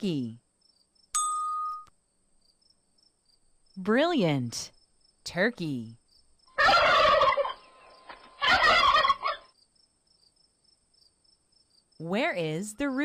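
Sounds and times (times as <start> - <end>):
turkey gobbling: 6.5 - 9.6.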